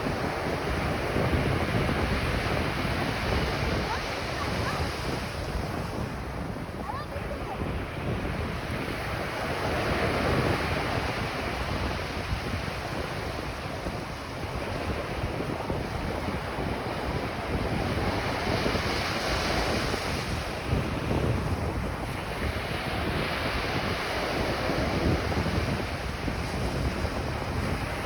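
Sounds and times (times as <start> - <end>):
ocean surf breaking: 0.0 - 28.0
wind rumbling on microphone: 0.0 - 28.0.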